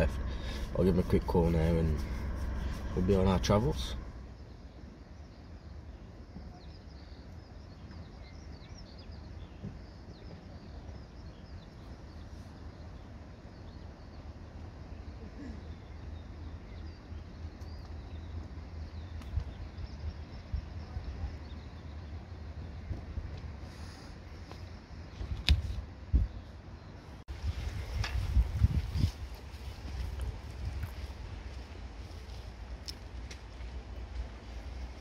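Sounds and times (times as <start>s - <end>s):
steady low rumble: 0.0s - 6.3s, 25.8s - 35.0s
birds chirping: 0.0s - 25.4s.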